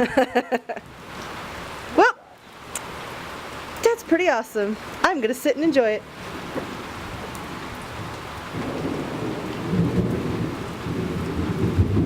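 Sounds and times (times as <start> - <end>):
steady rain falling: 0.0 - 12.0
low rolling thunder: 6.6 - 12.0.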